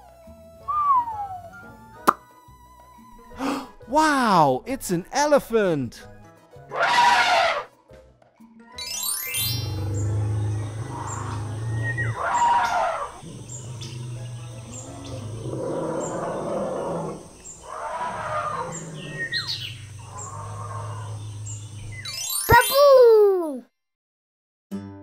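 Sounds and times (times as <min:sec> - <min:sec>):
birds chirping: 0:09.3 - 0:22.4
steady low hum: 0:09.6 - 0:22.1.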